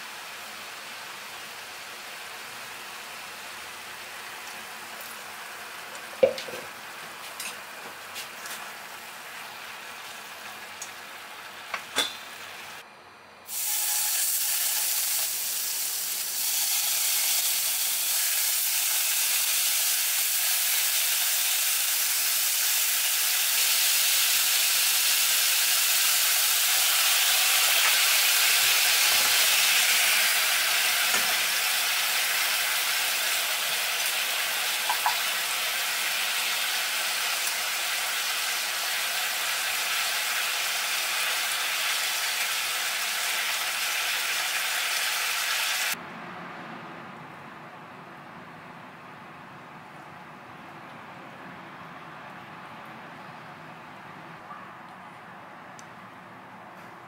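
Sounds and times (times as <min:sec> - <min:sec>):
beef sizzling in a pan: 0:13.5 - 0:46.0
vegetables hissing in a pan: 0:13.5 - 0:46.0.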